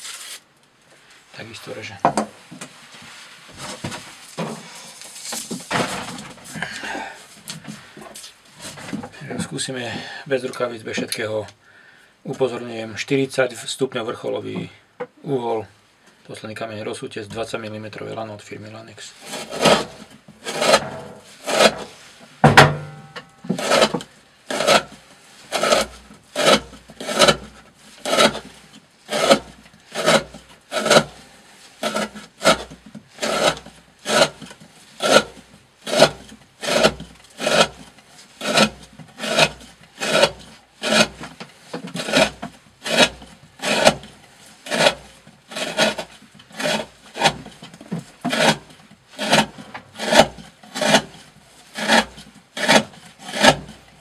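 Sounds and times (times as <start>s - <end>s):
knife slicing through rope: 19.2s - 22.1s, 23.5s - 28.5s, 29.1s - 31.2s, 31.8s - 37.8s, 38.4s - 41.2s, 42.0s - 47.4s, 51.8s - 53.8s.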